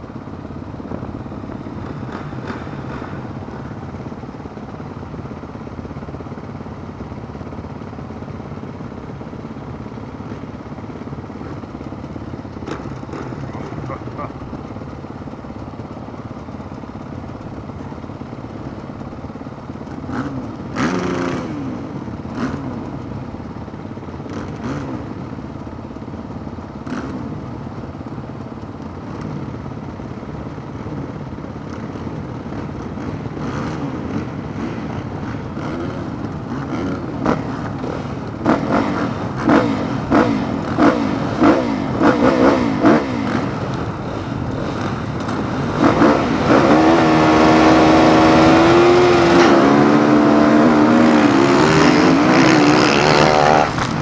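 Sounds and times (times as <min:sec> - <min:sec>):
motocross bike engines revving: 0:00.0 - 0:54.0
motorcycle accelerating close by: 0:00.8 - 0:04.7, 0:11.3 - 0:14.9, 0:19.8 - 0:23.2, 0:24.0 - 0:25.4, 0:26.8 - 0:27.4, 0:30.8 - 0:54.0.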